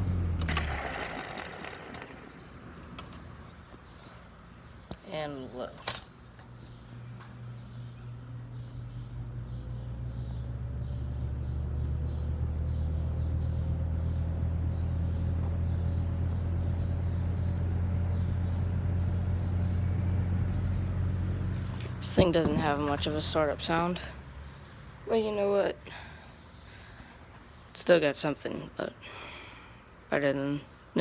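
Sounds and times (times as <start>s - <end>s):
box fan motor humming: 0.0s - 3.9s, 5.1s - 24.2s
birds chirping: 0.0s - 31.0s.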